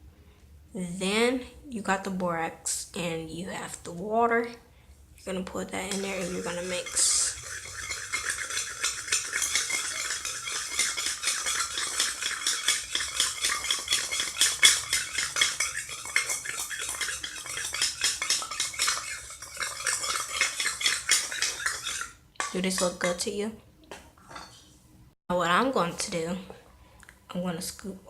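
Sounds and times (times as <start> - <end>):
spoon scraping a container: 5.5 - 23.3.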